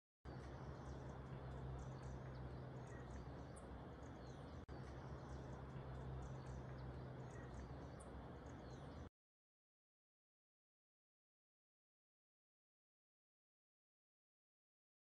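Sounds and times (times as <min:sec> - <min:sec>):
birds chirping: 0:00.3 - 0:09.1
low hum and hiss: 0:00.3 - 0:09.1.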